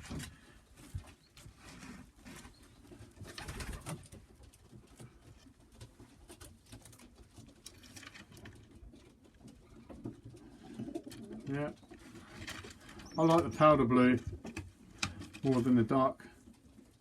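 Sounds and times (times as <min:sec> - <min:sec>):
light clicks and rustles: 0:00.0 - 0:13.6
pigeons cooing: 0:08.9 - 0:13.8.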